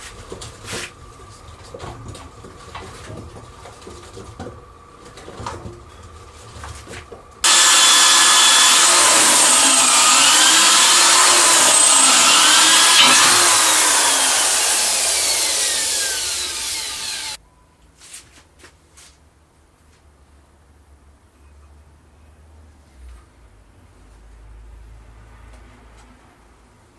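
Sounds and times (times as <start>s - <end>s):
power tool whining on metal: 7.4s - 17.4s.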